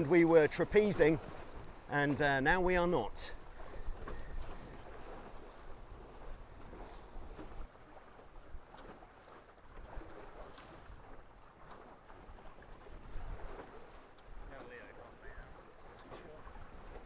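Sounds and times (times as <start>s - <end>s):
water rushing along hulls: 0.0s - 17.0s
wind buffeting microphone: 2.5s - 7.7s, 12.8s - 13.7s.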